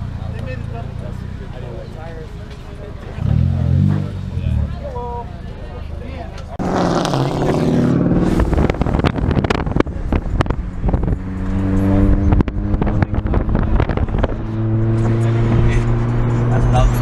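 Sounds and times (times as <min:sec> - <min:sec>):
car engine running: 0:00.0 - 0:17.0
wind buffeting microphone: 0:07.9 - 0:16.8.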